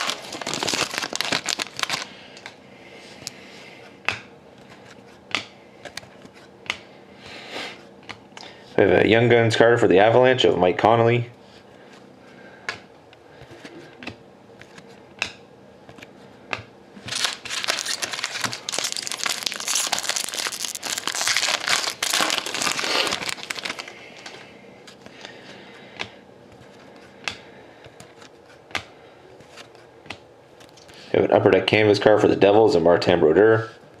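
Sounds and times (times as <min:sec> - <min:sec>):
wrapper tearing and crinkling: 0:00.0 - 0:02.1, 0:17.1 - 0:24.4.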